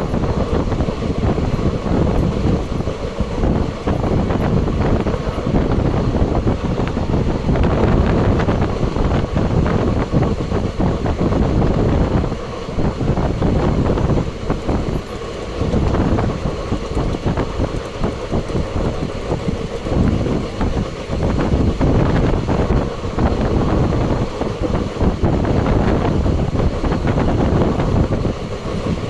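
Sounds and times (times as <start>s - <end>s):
train clattering on rails: 0.0s - 29.0s
wind buffeting microphone: 0.0s - 29.0s.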